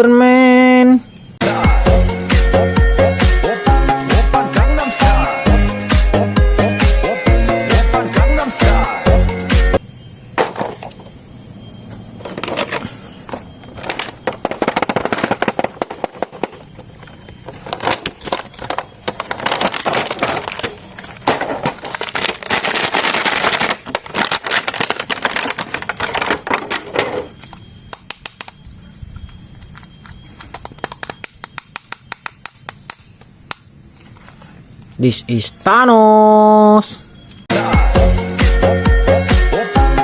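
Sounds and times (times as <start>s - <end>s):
plastic packaging crackling: 13.6s - 28.7s.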